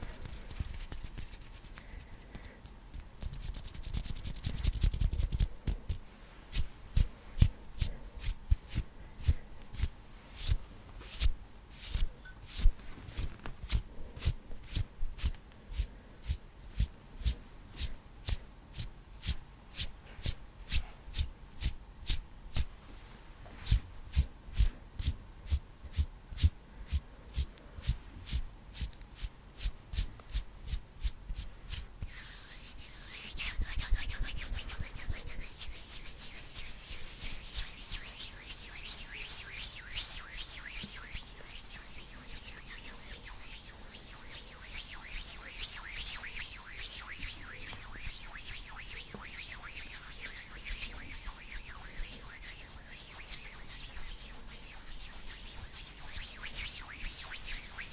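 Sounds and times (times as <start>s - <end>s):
hands rubbing together: 0.0s - 2.2s, 3.2s - 15.3s, 27.8s - 57.9s.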